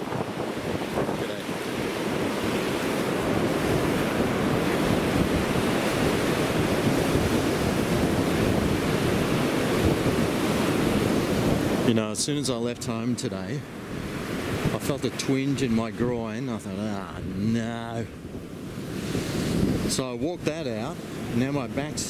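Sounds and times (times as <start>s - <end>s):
ocean surf washing: 0.0s - 22.0s
wind buffeting microphone: 0.0s - 22.0s.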